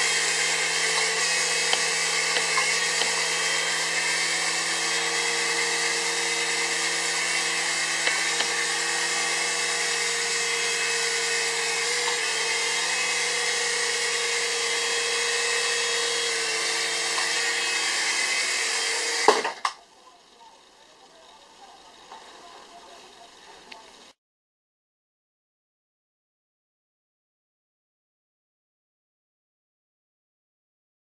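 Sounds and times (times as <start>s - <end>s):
toy helicopter motor whine: 0.0s - 24.2s.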